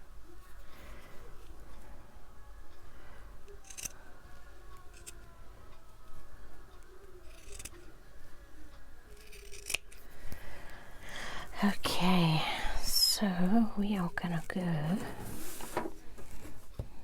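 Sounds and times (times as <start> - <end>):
scissors snipping fabric: 3.6 - 4.0, 4.8 - 5.3, 6.8 - 7.8, 9.1 - 10.1.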